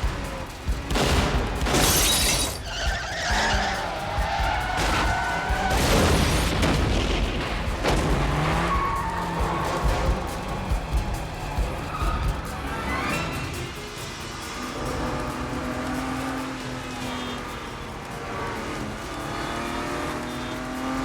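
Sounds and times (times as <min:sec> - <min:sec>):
car engines: 0:00.0 - 0:21.0
film score music: 0:00.0 - 0:21.0
tyres skidding: 0:00.0 - 0:21.0
car crash: 0:00.1 - 0:20.2
glass shattering: 0:00.9 - 0:03.7.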